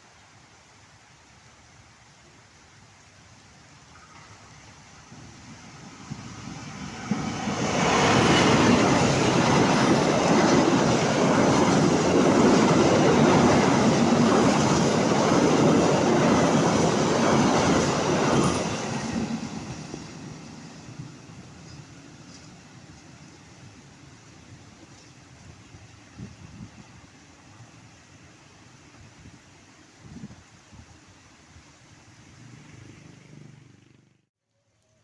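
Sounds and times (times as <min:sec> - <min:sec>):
train rumbling on rails: 0:03.9 - 0:29.6.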